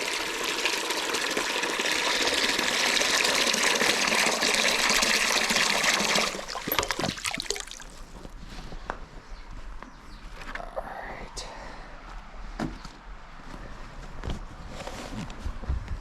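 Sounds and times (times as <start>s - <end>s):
water gushing into a bucket: 0.0s - 8.2s.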